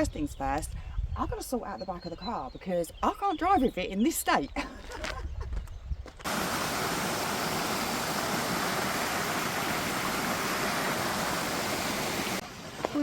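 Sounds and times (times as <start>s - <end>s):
stream water rushing: 6.3s - 13.0s.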